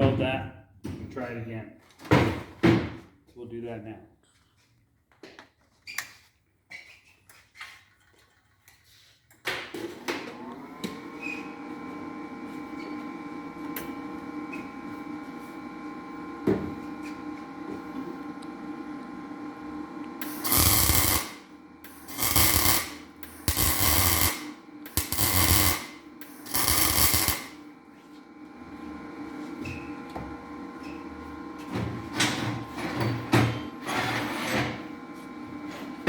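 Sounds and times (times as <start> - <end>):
steady electrical hum: 15.1 - 29.6
welding arc bursts: 20.2 - 27.6.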